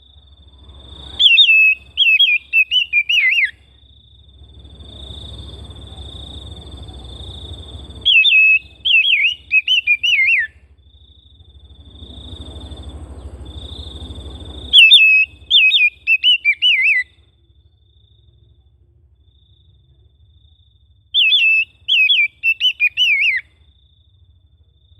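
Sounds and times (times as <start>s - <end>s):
bird warbling whistles: 1.2s - 3.6s, 8.0s - 10.6s, 14.7s - 17.1s, 21.2s - 23.5s.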